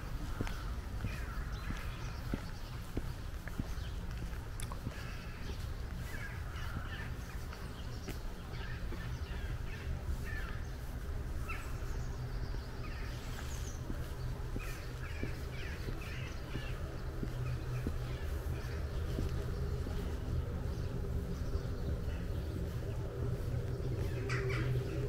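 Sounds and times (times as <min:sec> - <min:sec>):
birds calling: 0:00.0 - 0:25.0
steady low rumble: 0:00.0 - 0:25.0.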